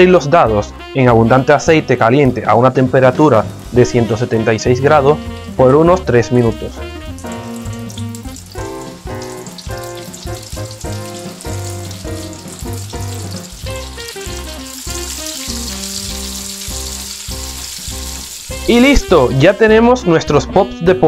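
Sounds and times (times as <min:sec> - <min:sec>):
chicken deep-frying in oil: 0:02.9 - 0:19.7.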